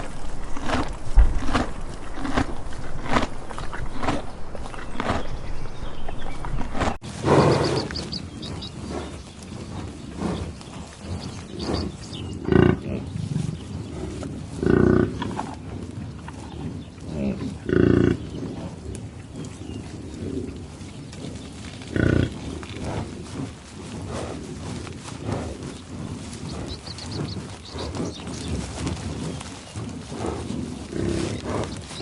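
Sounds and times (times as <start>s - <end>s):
farm animal calling: 0.0s - 32.0s
faint animal sounds: 7.2s - 32.0s.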